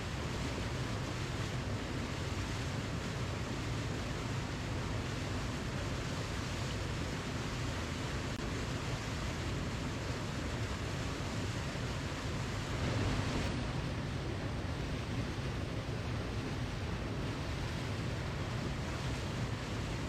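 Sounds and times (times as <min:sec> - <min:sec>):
waterfall rushing: 0:11.8 - 0:14.8.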